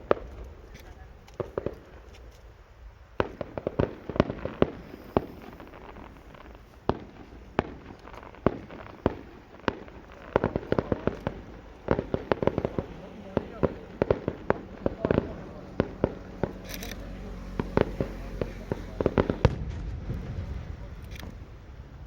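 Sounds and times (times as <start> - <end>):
fireworks bangs and cracks: 0.0 - 22.0.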